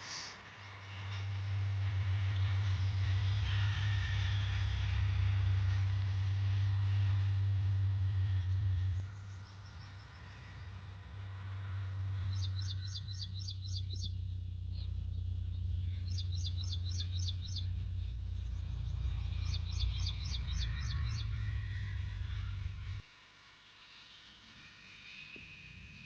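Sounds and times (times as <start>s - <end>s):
tractor diesel engine droning: 1.0s - 23.0s
bird chirping rapidly: 12.3s - 22.5s.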